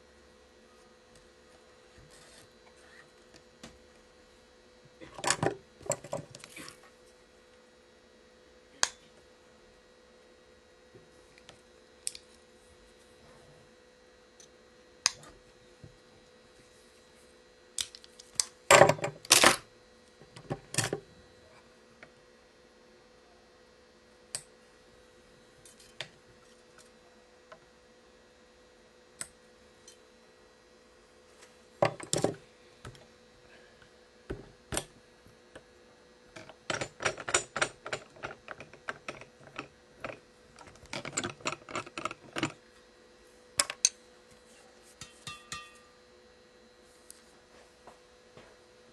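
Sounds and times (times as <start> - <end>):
stringing machine clicking and rattling: 36.4 - 42.6.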